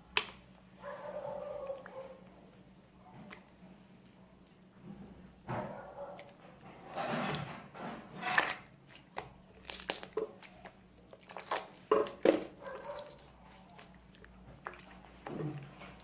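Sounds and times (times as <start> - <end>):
slime squishing and crackling: 8.9 - 16.0.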